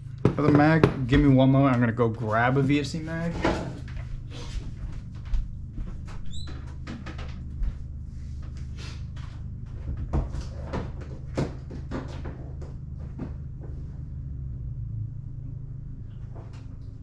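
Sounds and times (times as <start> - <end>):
low electrical hum: 0.0 - 17.0
rummaging knocks and clatter: 3.1 - 13.8.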